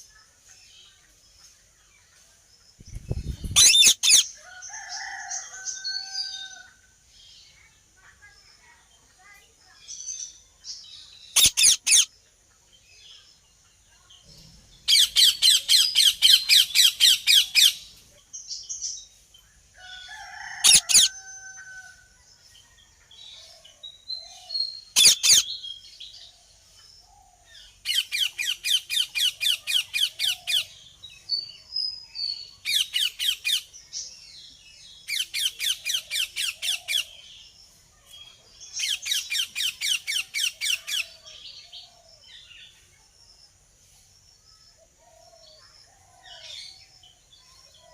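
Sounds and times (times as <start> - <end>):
parakeets screeching: 3.4 - 6.5, 11.4 - 12.1, 20.2 - 21.8, 25.0 - 25.5
single sharp parakeet calls: 3.6 - 4.3, 11.4 - 12.1, 25.0 - 25.5.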